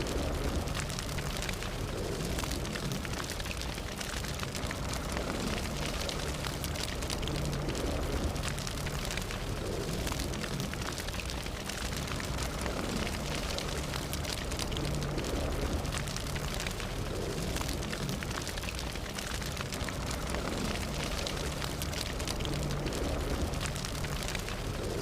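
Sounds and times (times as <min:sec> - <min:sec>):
fire crackling and popping: 0:00.0 - 0:25.0.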